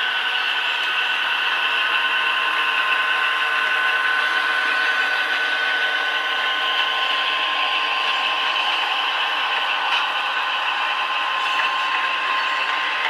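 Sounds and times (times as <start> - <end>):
model train mechanism whirring: 0.0 - 13.0
steady high whine: 0.0 - 13.0
locomotive sounds from tiny speakers: 0.1 - 13.0.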